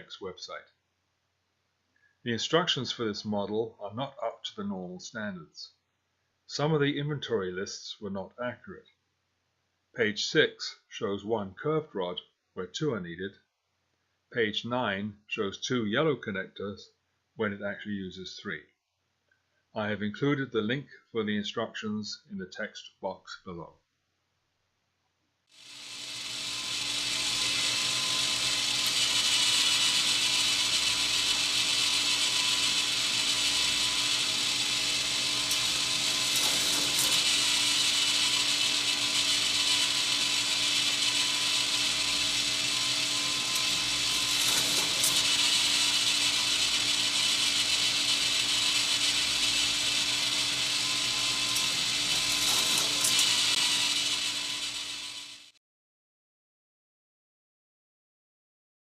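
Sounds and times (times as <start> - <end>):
motor hum: 25.6 - 55.5
toy coaster car rattling: 25.6 - 55.5
toy lift clattering: 26.2 - 55.4.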